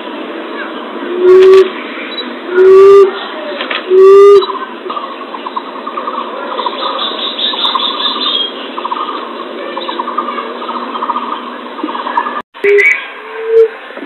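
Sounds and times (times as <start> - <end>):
bird trilling: 3.9 - 13.7.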